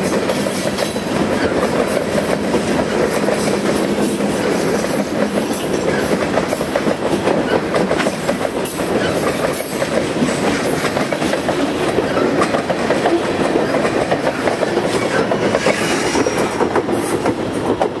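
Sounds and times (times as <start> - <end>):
freight train rumbling past: 0.0 - 18.0
steel wheels clacking on rails: 0.0 - 18.0.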